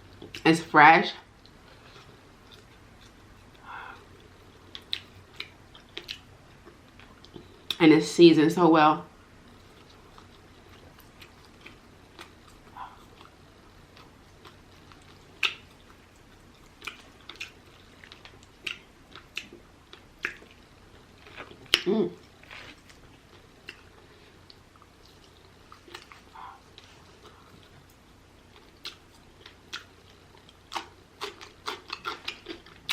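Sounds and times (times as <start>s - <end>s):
chewing and biting chicken: 14.0s - 32.9s.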